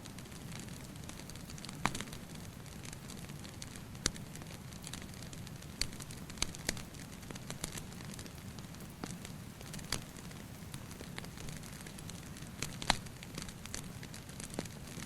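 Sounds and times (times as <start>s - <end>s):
wood fire crackling: 0.0s - 15.0s
fire pops: 0.2s - 15.0s.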